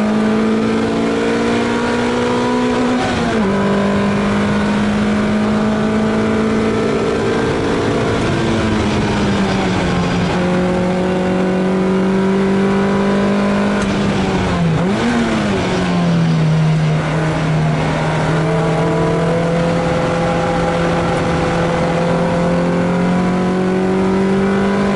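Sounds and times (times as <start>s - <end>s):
race car engine from inside cabin: 0.0s - 24.9s.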